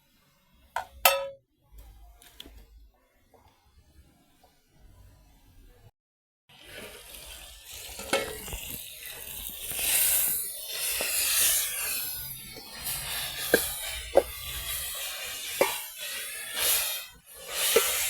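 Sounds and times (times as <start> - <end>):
food sizzling in a pan: 6.5 - 18.0
utensil clicking against pan: 15.4 - 15.9.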